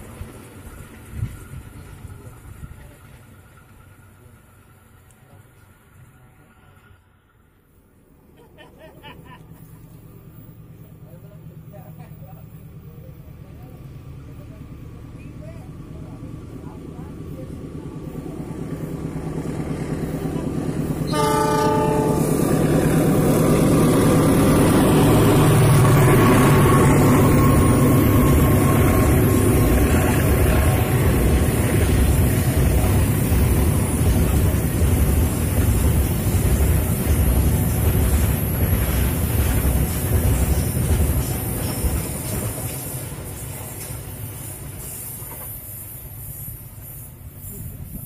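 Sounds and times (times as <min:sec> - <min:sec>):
wheels rattling on rails: 0:00.0 - 0:07.0, 0:21.9 - 0:48.0
diesel locomotive rumble: 0:00.0 - 0:48.0
train horn blast: 0:21.0 - 0:22.7.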